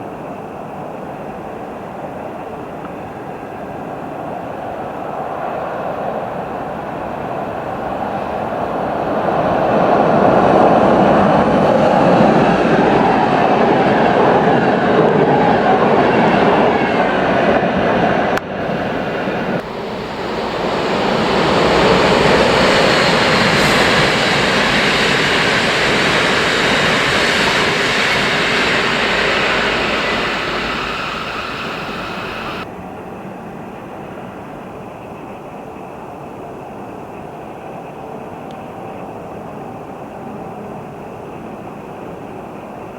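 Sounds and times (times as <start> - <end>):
train wheels on rails: 0.0 - 32.7.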